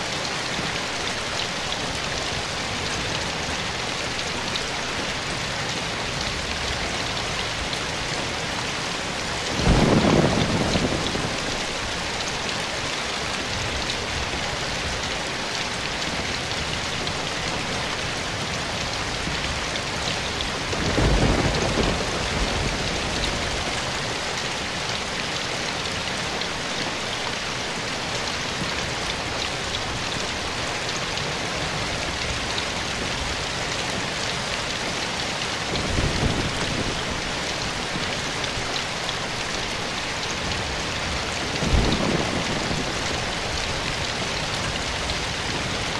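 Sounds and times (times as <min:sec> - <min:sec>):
rain falling in a forest: 0:00.0 - 0:45.9
low rumbles of thunder: 0:09.5 - 0:11.8, 0:20.6 - 0:23.8, 0:41.5 - 0:45.9.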